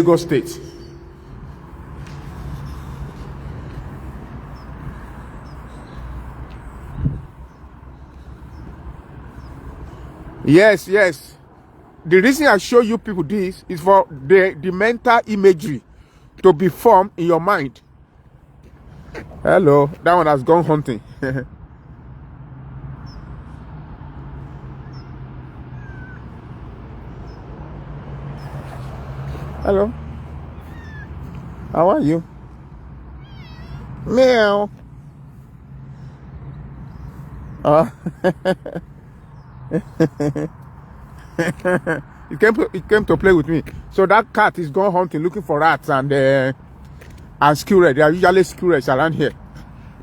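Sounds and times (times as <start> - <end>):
road traffic rumble: 0.0 - 50.0
cat meowing: 25.8 - 26.2, 30.7 - 31.1, 33.2 - 34.0.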